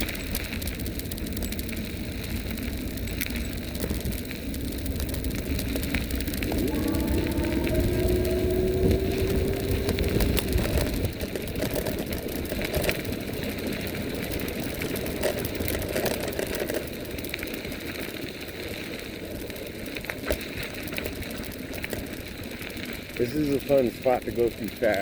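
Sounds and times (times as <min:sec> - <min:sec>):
bike rattling and clicking: 0:00.0 - 0:25.0
bike tyres rumbling: 0:00.0 - 0:25.0
thin whine: 0:06.1 - 0:12.1.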